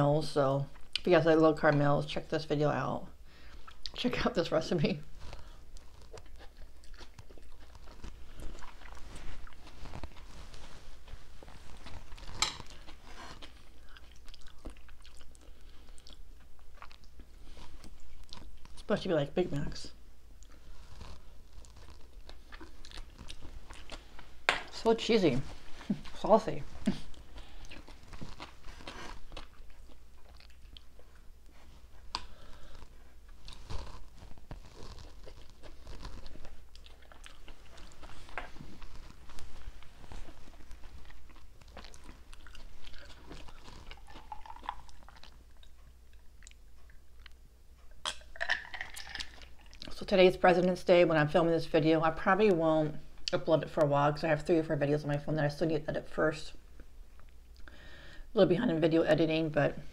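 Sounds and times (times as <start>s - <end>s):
person chewing food: 3.3s - 18.9s, 20.3s - 50.0s, 56.8s - 57.9s.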